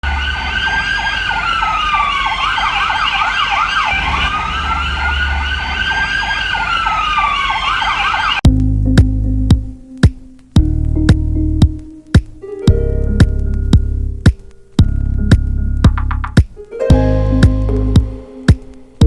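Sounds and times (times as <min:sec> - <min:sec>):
siren wailing and yelping: 0:00.0 - 0:08.4.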